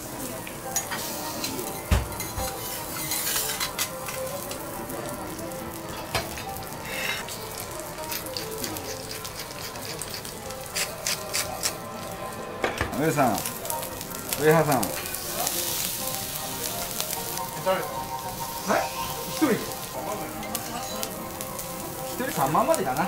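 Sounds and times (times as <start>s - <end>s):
beef fat sizzling on griddle: 0.0s - 23.0s
pepper mill grinding: 7.8s - 11.8s.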